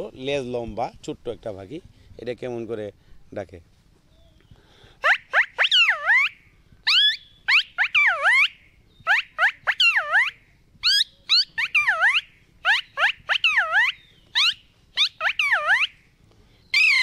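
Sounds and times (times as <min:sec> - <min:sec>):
man whistling bird call: 0:04.1 - 0:16.0, 0:16.7 - 0:17.0.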